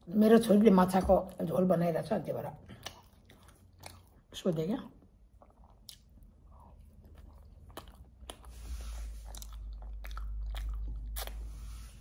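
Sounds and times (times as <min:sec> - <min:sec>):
person chewing: 0:02.6 - 0:04.4, 0:05.1 - 0:12.0.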